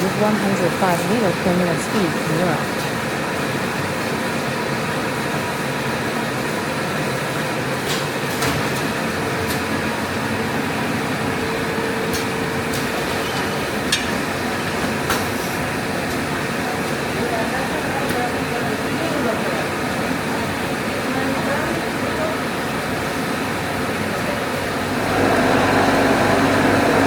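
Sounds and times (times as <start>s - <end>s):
machine humming: 8.9s - 17.0s, 24.6s - 27.0s.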